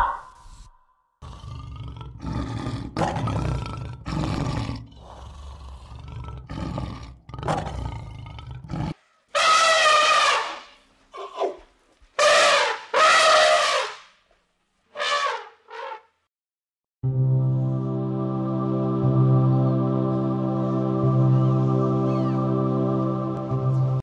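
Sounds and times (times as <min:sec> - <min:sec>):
big cat roaring and growling: 0:01.2 - 0:09.0
high-pitched animal call: 0:09.4 - 0:11.6, 0:12.2 - 0:14.0.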